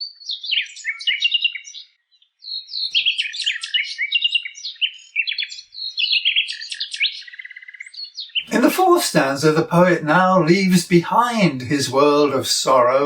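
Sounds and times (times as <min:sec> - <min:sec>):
nightingale singing: 0:00.0 - 0:08.6.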